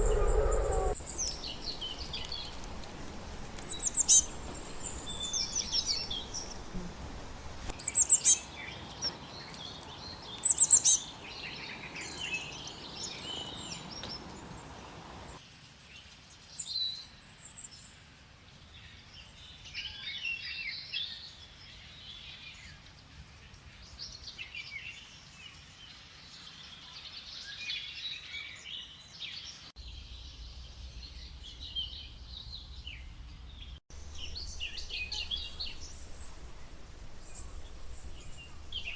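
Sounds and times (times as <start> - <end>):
birds calling and singing: 0.0 - 15.4, 34.0 - 38.9
background hiss: 0.0 - 27.6, 29.8 - 38.9.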